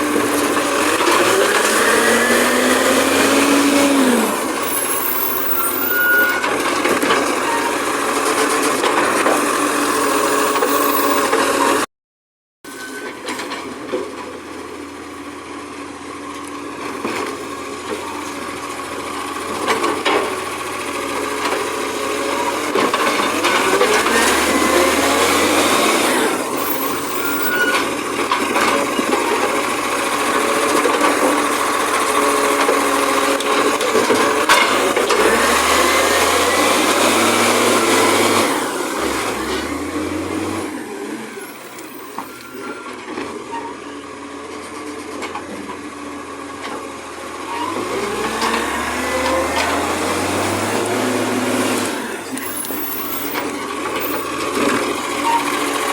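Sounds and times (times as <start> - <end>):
garbage truck engine revving: 0.0 - 11.9, 16.7 - 42.6, 45.8 - 55.9
hydraulics whining: 0.1 - 11.8, 22.2 - 44.0, 47.4 - 55.9.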